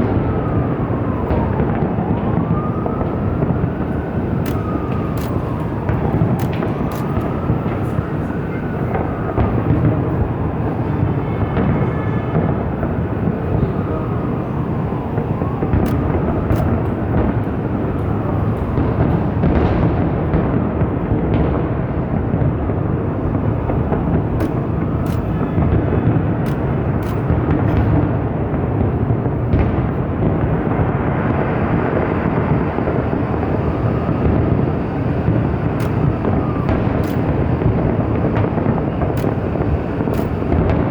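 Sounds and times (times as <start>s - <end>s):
fireworks rumble: 0.0s - 40.9s
firework sharp crack: 3.4s - 8.0s, 15.6s - 17.8s, 23.0s - 28.0s, 35.0s - 40.9s
fireworks crackles: 22.2s - 40.9s.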